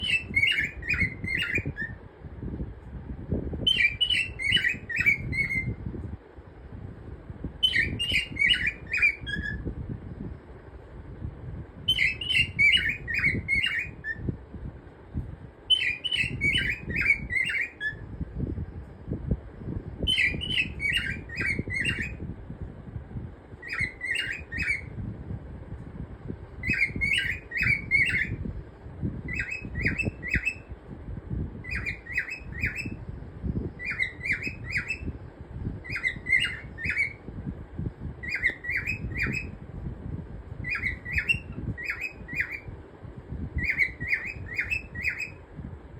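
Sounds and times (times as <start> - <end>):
cockatiel chirping: 0.0 - 2.0, 3.7 - 5.7, 7.6 - 9.6, 11.9 - 14.2, 15.7 - 18.0, 20.1 - 22.2, 23.6 - 24.9, 26.6 - 28.4, 29.3 - 30.6, 31.6 - 33.0, 33.8 - 35.1, 35.8 - 37.2, 38.2 - 39.5, 40.6 - 42.7, 43.6 - 45.4.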